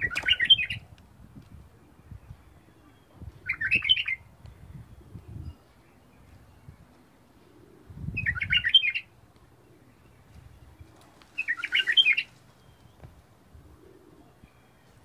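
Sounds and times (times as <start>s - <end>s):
bird chirping in rapid bursts: 3.5s - 4.3s, 8.1s - 9.1s.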